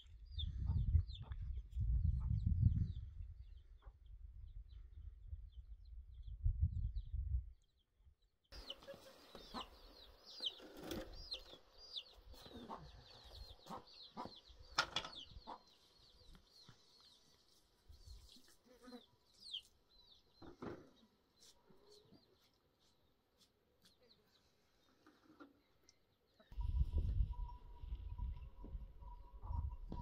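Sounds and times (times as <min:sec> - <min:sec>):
wind buffeting the microphone: 0:00.0 - 0:07.6, 0:26.5 - 0:30.0
small birds chirping: 0:00.0 - 0:07.9, 0:08.5 - 0:30.0
lower bird calls and clicks: 0:08.5 - 0:18.6.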